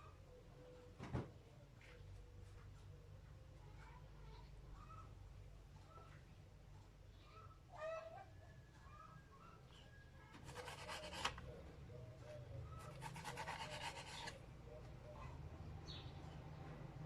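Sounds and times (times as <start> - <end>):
faint bird chirps: 7.1 - 10.4, 11.0 - 16.5.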